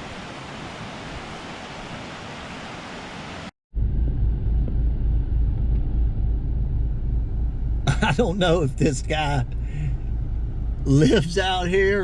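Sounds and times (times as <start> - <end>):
fluctuating low rumble: 3.7 - 12.0.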